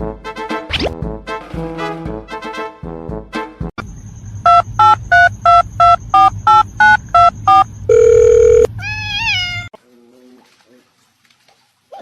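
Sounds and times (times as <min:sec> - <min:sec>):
telephone keypad tones: 0:04.5 - 0:08.7.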